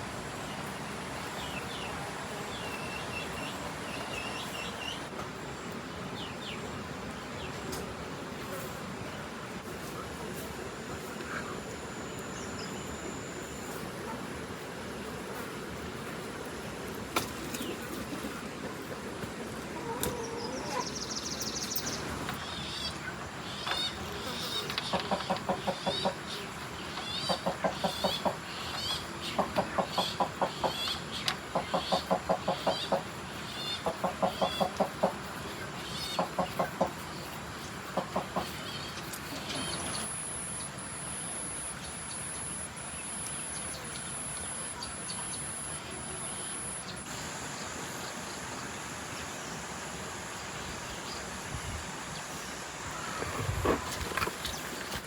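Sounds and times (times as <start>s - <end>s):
chickens clucking: 19.6s - 21.0s, 22.3s - 40.0s
steady hiss: 30.2s - 55.0s.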